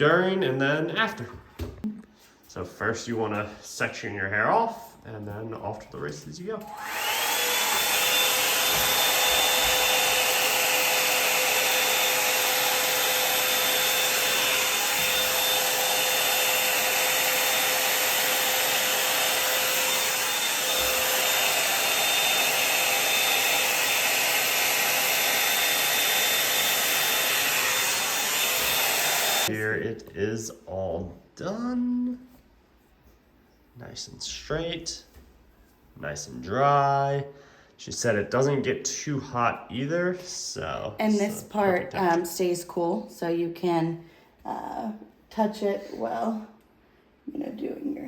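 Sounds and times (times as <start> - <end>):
hot air brush whining: 6.6 - 29.5.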